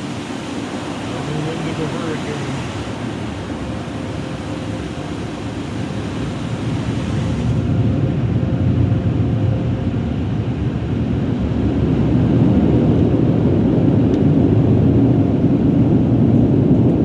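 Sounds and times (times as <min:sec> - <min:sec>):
car wash machinery rushing: 0:00.0 - 0:08.0.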